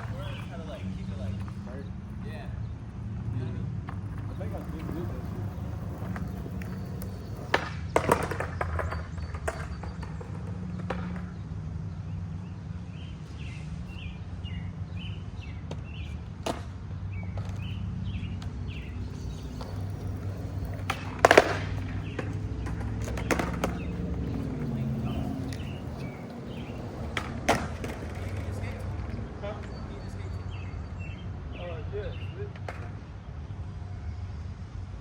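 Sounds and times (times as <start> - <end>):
skateboard clacks: 0.0 - 11.8, 15.7 - 29.8, 32.5 - 33.0
skateboard wheels rolling on pavement: 0.0 - 35.0.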